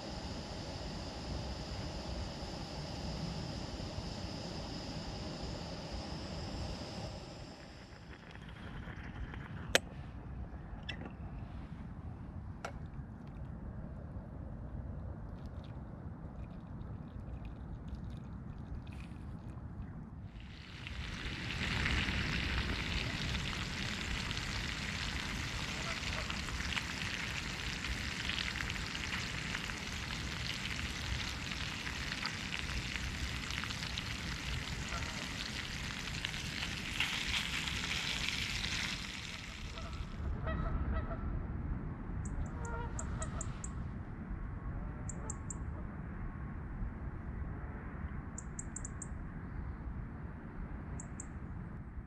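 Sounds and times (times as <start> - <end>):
low outdoor rumble: 0.0 - 52.0
bacon sizzling in a frying pan: 20.4 - 40.2
waterfowl calls: 25.0 - 27.4, 34.4 - 35.8, 39.2 - 41.2, 42.6 - 43.6.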